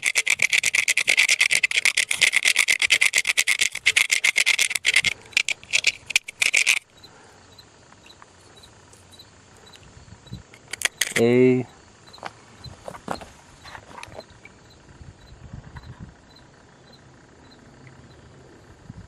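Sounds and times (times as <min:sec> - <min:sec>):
scrubbing on metal: 0:00.0 - 0:06.9.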